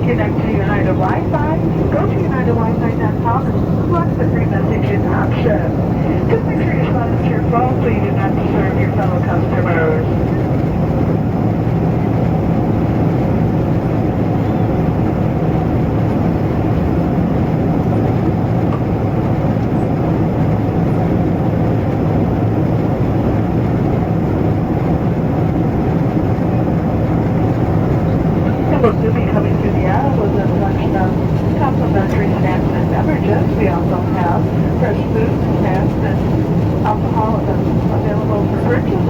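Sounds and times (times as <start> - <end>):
aircraft cabin engine rush: 0.0 - 39.0.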